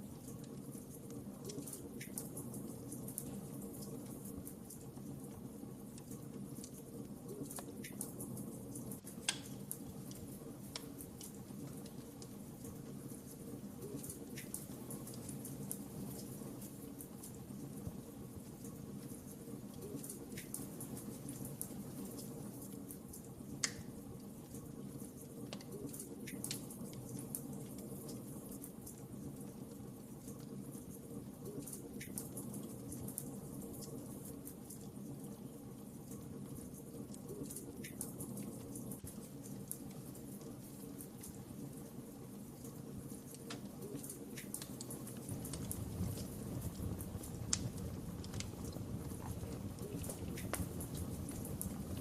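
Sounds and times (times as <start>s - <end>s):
wood fire crackling: 0.0s - 52.0s
fire pops: 6.0s - 24.2s, 42.7s - 52.0s.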